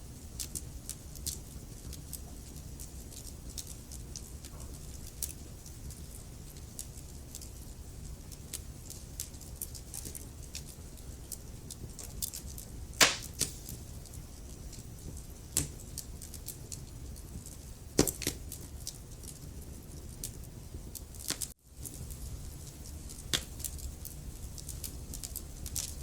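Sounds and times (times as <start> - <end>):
wood fire crackling: 0.0 - 26.0
loud fire pops: 13.0 - 13.9.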